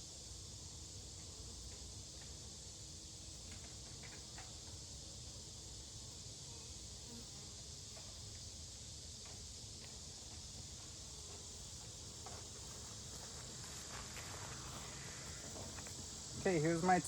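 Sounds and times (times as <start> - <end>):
steady high hiss: 0.0 - 17.0
honeybees buzzing: 9.8 - 17.0.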